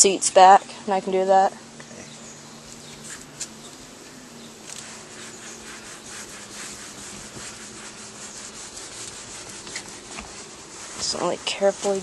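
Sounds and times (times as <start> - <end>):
scrubbing on boat surface: 2.6 - 3.7, 4.5 - 12.0.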